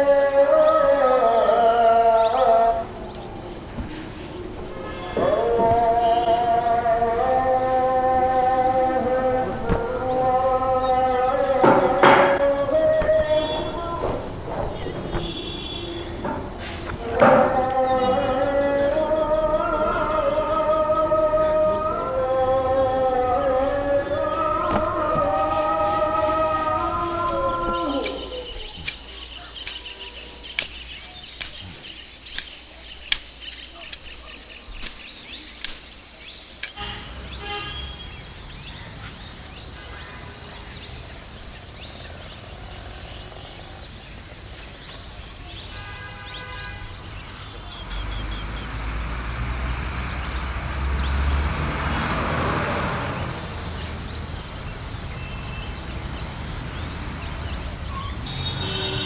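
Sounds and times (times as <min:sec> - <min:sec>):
passing traffic rumble: 0:00.0 - 0:59.0
short bird calls: 0:00.6 - 0:48.7
sharp clicks or knocks: 0:11.4 - 0:18.0, 0:27.2 - 0:36.8.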